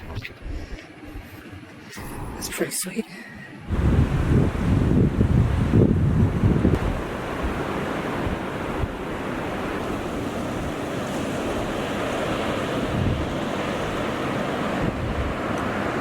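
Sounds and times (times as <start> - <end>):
wind buffeting microphone: 0.0 - 2.5, 3.6 - 16.0
wind rushing: 3.6 - 9.0.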